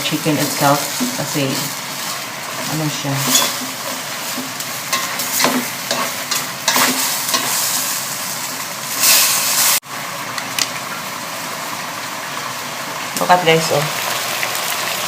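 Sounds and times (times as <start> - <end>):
chicken sizzling in a pot: 0.0 - 15.0
scraping in a pot: 0.8 - 9.8.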